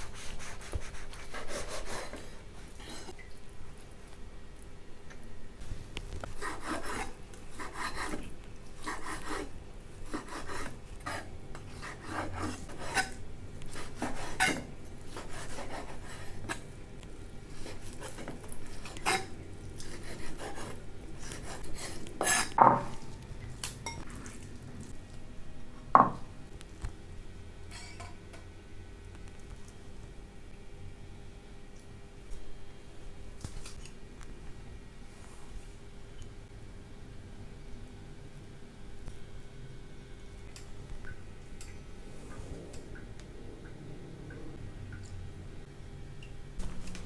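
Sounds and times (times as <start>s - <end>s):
utensils clinking against dishes: 27.7s - 28.2s.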